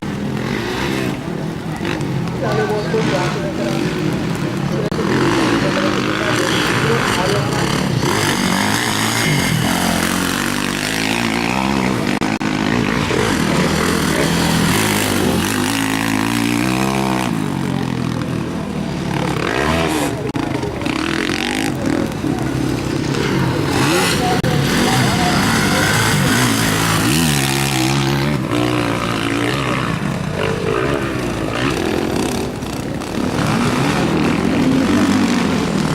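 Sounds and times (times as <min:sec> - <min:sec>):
motocross bikes revving: 0:00.0 - 0:35.9.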